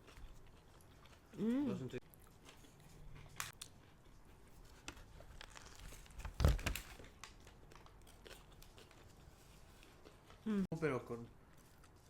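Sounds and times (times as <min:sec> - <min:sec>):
food wrapper crinkling: 0:04.7 - 0:10.2.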